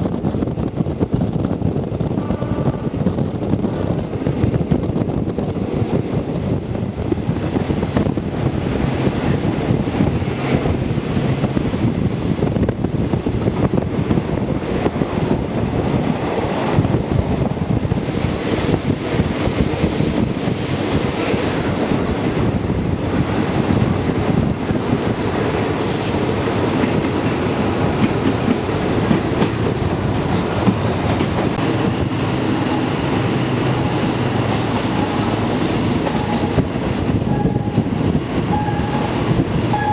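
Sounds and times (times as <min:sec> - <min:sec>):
train wheels rumbling on track: 0:00.0 - 0:39.9
rail-joint clatter: 0:24.4 - 0:39.9
high squeal: 0:31.7 - 0:39.9.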